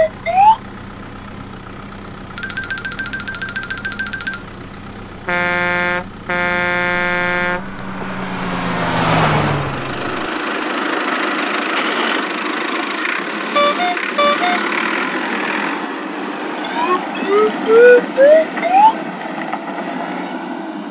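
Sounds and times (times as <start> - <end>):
electronic beeps: 2.4 - 4.4
low hum: 2.4 - 10.7
horn honks: 5.2 - 8.7, 13.5 - 14.9
steady rushing noise: 6.7 - 10.8.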